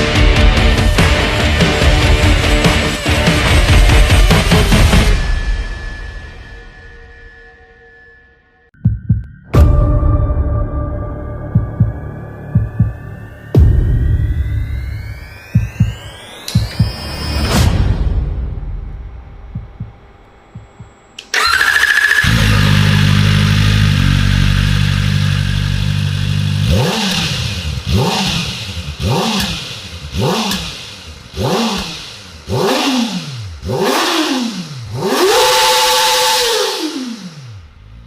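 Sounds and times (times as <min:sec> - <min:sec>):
motorcycle engine idling and revving: 0:00.0 - 0:05.4, 0:11.4 - 0:17.6, 0:18.8 - 0:38.0
starter whine: 0:12.5 - 0:38.0.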